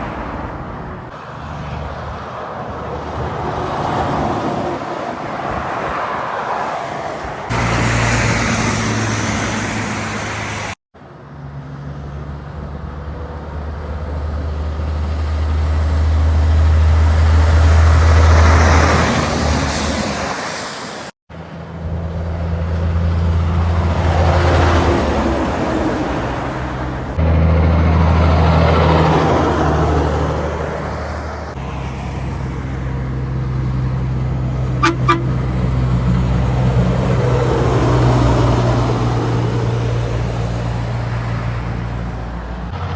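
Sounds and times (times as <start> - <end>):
heavy trucks driving past: 0.0 - 42.9
truck horn toots: 34.8 - 35.8.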